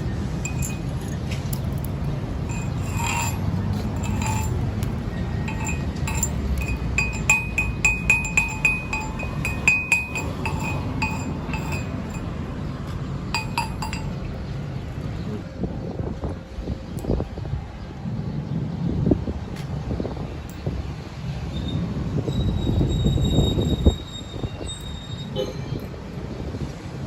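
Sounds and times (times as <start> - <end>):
metallic taps on steel: 0.4 - 4.9, 5.5 - 12.3, 13.4 - 14.2.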